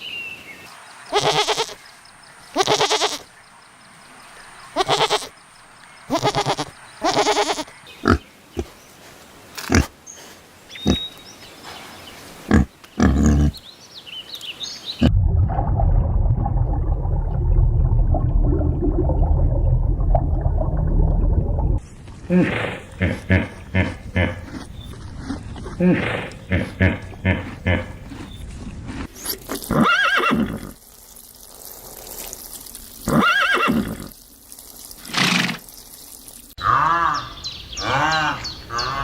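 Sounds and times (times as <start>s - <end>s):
livestock bleating: 1.1s - 1.8s, 2.6s - 3.2s, 4.8s - 5.3s, 6.1s - 8.2s
low rumbling noise: 15.0s - 29.1s.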